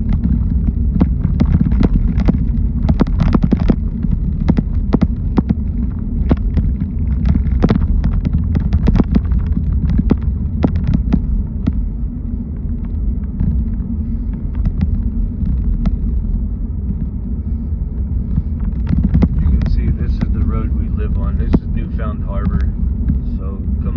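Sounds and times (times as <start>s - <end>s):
car road and engine rumble: 0.0s - 23.9s
sharp taps and clicks: 0.9s - 11.8s.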